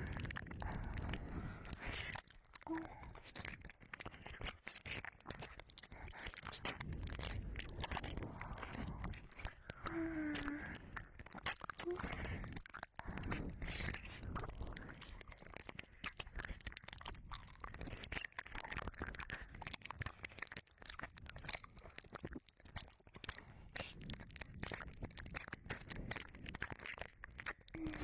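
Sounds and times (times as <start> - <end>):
lip smacks: 0.0 - 28.0
tongue clicks: 0.0 - 28.0.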